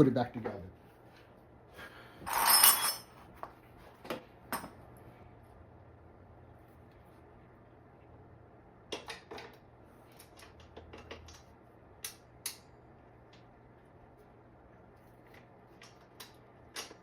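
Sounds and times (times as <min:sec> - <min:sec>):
faint steady hum: 0:00.0 - 0:17.0
bike parts and tools clinking: 0:02.2 - 0:03.2, 0:08.9 - 0:12.7, 0:15.3 - 0:17.0.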